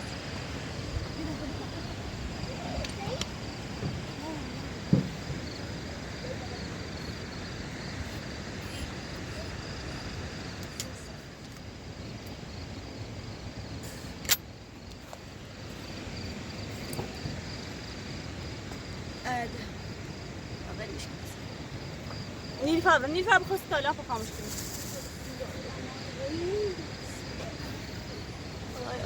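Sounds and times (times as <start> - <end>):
crickets chirping: 0.0 - 29.0
low outdoor noise: 0.0 - 29.0
sharp click: 14.2 - 14.4.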